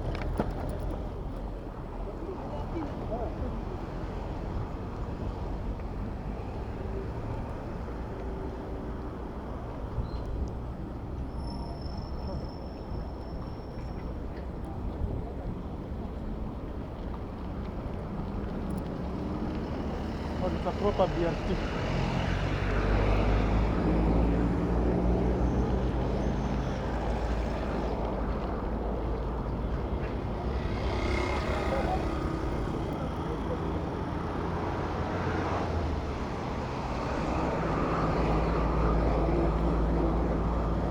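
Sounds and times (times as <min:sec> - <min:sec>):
city road traffic rumble: 0:00.0 - 0:40.9
vehicle engine hum: 0:17.6 - 0:40.9.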